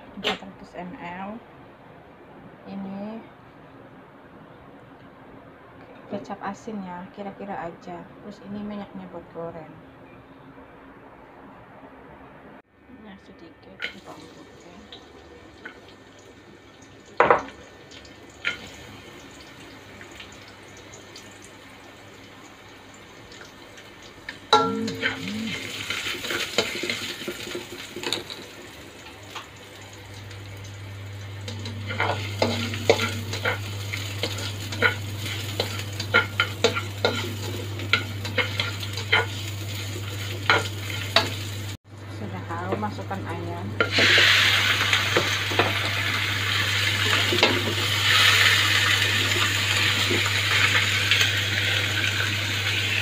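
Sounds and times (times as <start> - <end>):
low steady hum: 0.0 - 53.0
garlic sizzling in hot oil: 13.8 - 41.8, 43.7 - 53.0.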